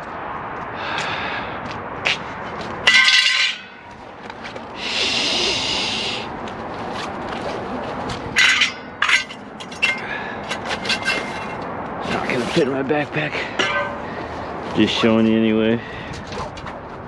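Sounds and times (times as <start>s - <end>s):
metal scraping and clinking: 2.4s - 4.0s, 8.3s - 12.7s, 13.4s - 14.3s.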